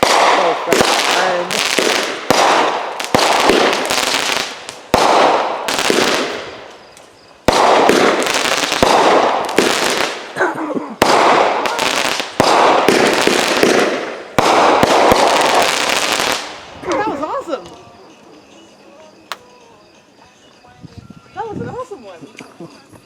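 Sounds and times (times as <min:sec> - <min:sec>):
firework crackling: 0:00.0 - 0:10.4, 0:11.0 - 0:18.1
firework bangs: 0:00.0 - 0:17.3.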